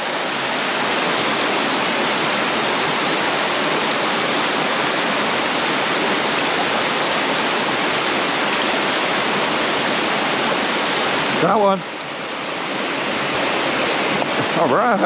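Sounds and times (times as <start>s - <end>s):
water rushing over waterfall: 0.0s - 15.0s.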